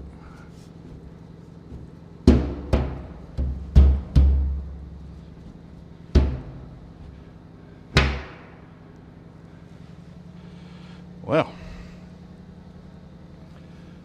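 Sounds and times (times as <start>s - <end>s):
hammer blows on metal tank: 2.3s - 4.8s, 6.1s - 6.8s.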